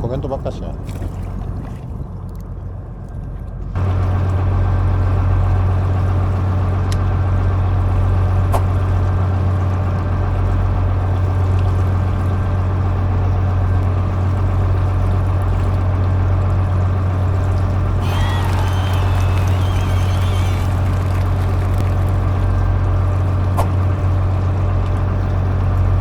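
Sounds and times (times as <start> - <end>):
boat machinery droning: 2.6 - 26.0
water washing: 14.0 - 26.0.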